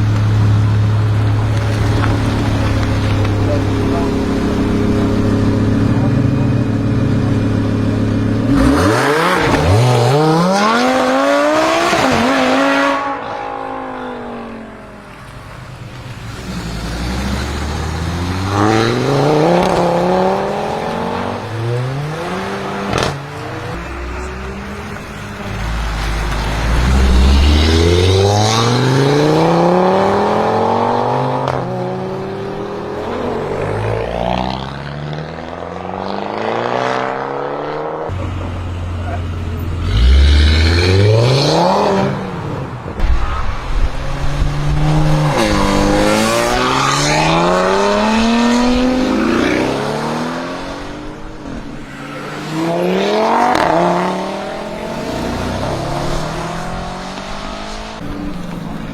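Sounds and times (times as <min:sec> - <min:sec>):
car engine idling and revving: 0:00.0 - 0:58.9
exhaust pop: 0:42.7 - 0:46.2.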